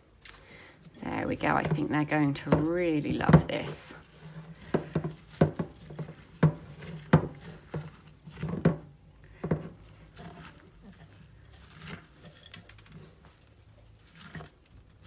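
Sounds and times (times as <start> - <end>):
utensil knocking against bowl: 4.6 - 9.8.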